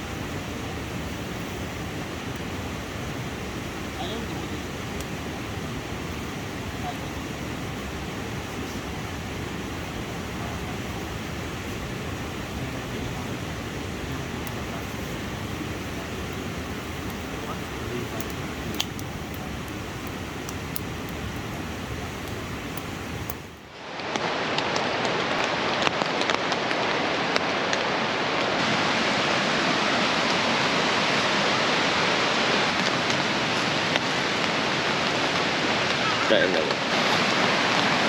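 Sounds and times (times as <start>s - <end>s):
fast-flowing river rushing: 0.0s - 38.0s
rain: 0.0s - 38.0s
sharp ticks: 18.2s - 19.1s.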